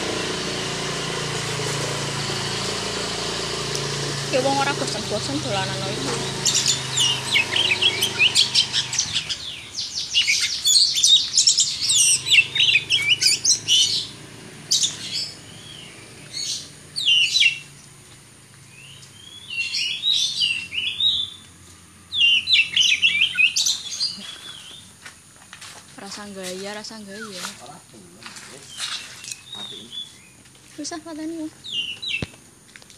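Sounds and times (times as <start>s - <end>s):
magpie-robin singing: 4.3s - 17.7s, 18.8s - 21.4s, 22.1s - 24.8s, 26.6s - 27.6s, 28.7s - 31.0s, 31.6s - 32.3s.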